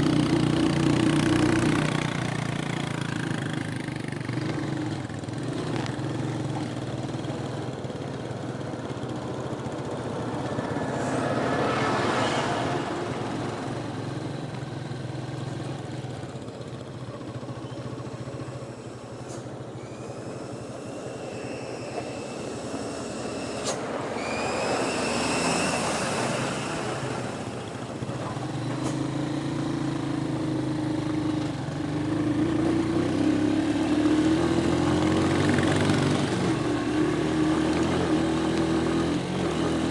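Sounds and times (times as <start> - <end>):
rattle of road and body noise: 0.0 - 39.9
vehicle engine running: 0.0 - 39.9
rising high whistling tones: 19.8 - 27.5.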